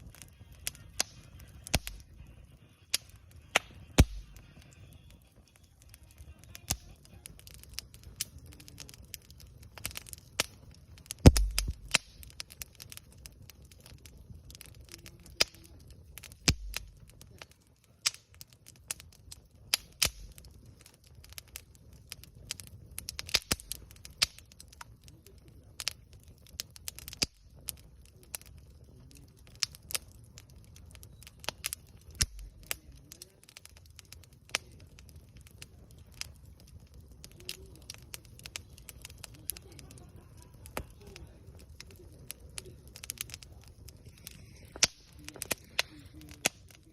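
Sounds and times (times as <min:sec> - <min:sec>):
campfire crackling and popping: 0:00.0 - 0:46.9
low thud: 0:11.3 - 0:11.9.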